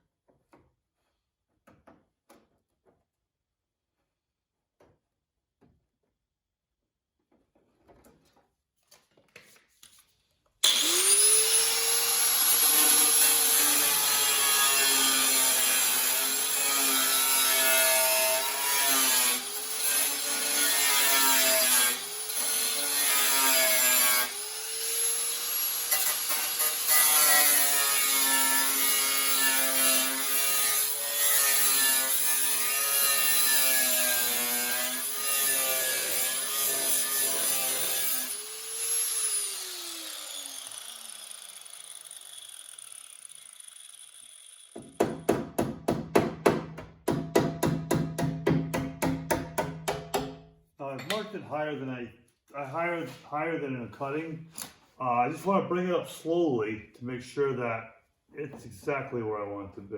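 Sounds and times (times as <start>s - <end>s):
power tool cutting sheet metal: 10.6s - 45.3s.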